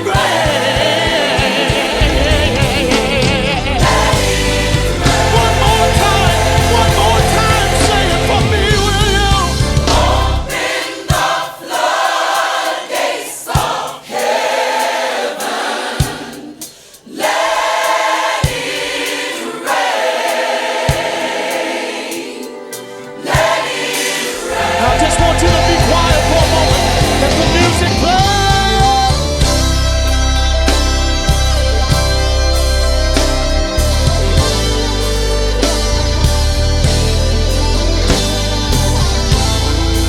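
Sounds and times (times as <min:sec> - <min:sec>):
band playing: 0:00.0 - 0:16.6, 0:17.2 - 0:40.0
sharp beats: 0:00.0 - 0:22.4, 0:23.2 - 0:29.8
gospel choir singing: 0:00.0 - 0:40.0.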